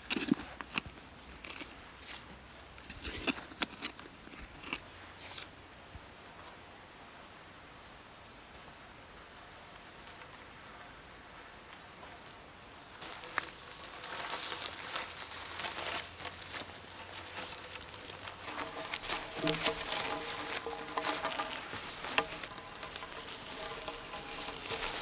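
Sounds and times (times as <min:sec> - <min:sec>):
dense rustling: 0:13.0 - 0:25.0
sharp snaps and knocks: 0:13.0 - 0:25.0.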